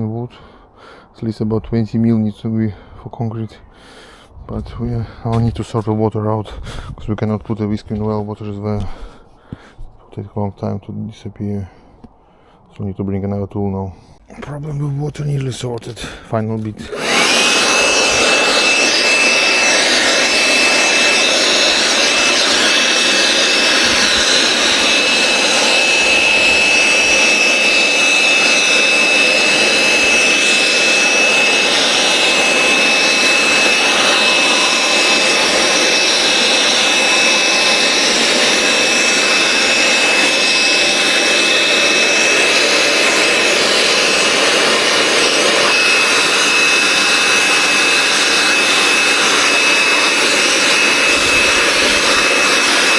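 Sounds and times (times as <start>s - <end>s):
vacuum motor whine: 16.8s - 52.9s.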